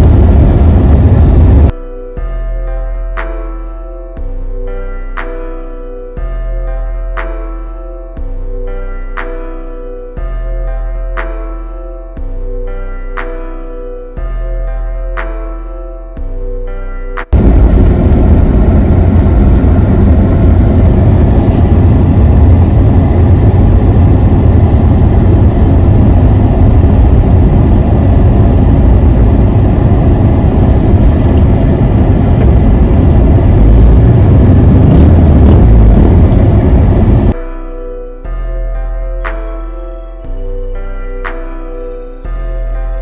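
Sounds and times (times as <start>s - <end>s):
car engine rumble: 0.0s - 1.7s, 17.3s - 37.4s
wind noise on microphone: 0.0s - 1.8s, 17.3s - 37.4s.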